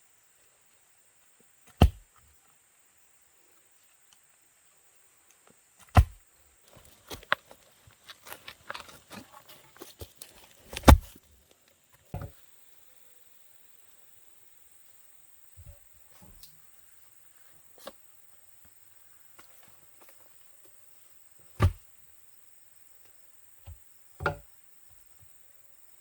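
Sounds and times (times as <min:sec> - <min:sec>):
heavy knocks with deep thud: 0:01.7 - 0:02.0, 0:05.9 - 0:06.2, 0:21.6 - 0:21.8, 0:23.7 - 0:24.5.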